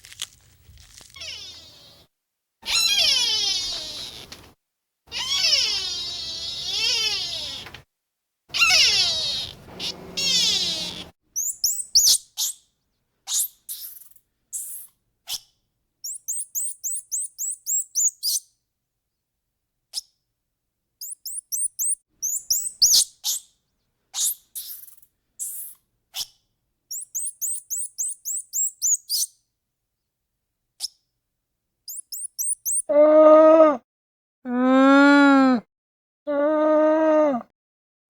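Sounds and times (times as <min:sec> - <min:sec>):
small bird chirping: 0:00.3 - 0:02.1, 0:02.7 - 0:04.5, 0:05.1 - 0:07.7, 0:08.5 - 0:12.7, 0:13.3 - 0:18.5, 0:21.0 - 0:29.4, 0:31.9 - 0:32.9
cat meowing: 0:01.0 - 0:02.0, 0:02.6 - 0:04.4, 0:05.1 - 0:07.8, 0:08.5 - 0:11.1.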